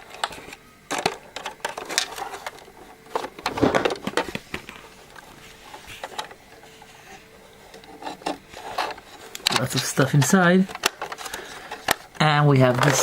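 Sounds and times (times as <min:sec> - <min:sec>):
plastic toy parts clicking: 0:07.7 - 0:13.0.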